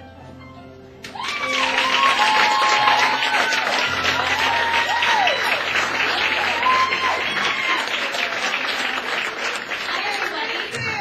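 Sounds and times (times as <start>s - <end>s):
cheers and whoops: 1.0s - 8.5s
audience applauding: 1.0s - 11.0s.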